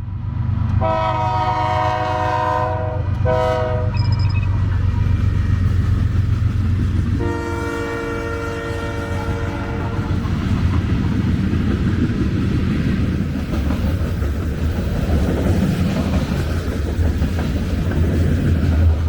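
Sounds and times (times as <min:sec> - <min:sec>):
freight train rumbling on rails: 0:00.0 - 0:19.0.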